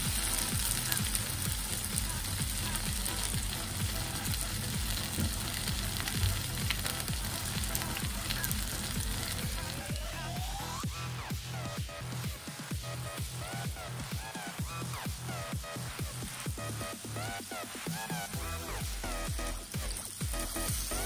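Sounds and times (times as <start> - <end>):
chicken frying in hot oil: 0.0 - 21.0.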